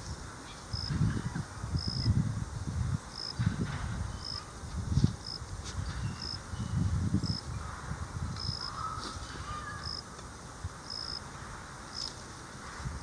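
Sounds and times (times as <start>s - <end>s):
insect chirping: 0.7s - 0.9s, 1.7s - 2.2s, 3.1s - 3.4s, 5.2s - 5.4s, 6.1s - 7.6s, 9.8s - 10.1s, 10.8s - 11.3s
crow cawing: 8.6s - 9.9s.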